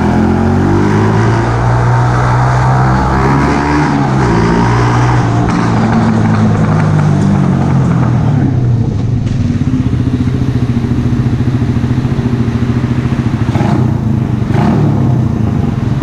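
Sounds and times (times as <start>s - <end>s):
motorcycle engine idling: 5.4s - 16.0s.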